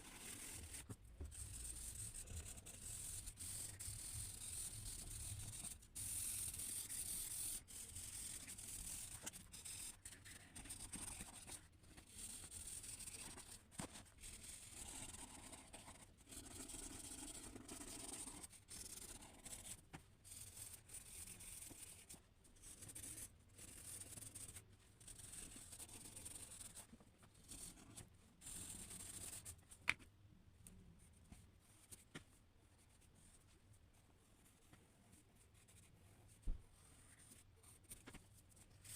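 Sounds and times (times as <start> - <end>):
drawing tool scratching paper: 0.0 - 29.6.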